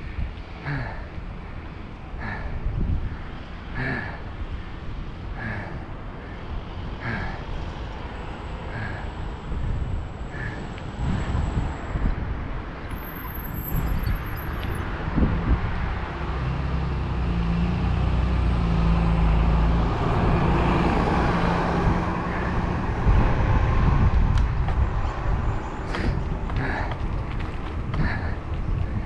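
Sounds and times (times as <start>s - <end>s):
vehicle engine hum: 0.0s - 29.0s
wind on microphone: 2.2s - 3.4s, 8.8s - 16.8s, 20.0s - 29.0s.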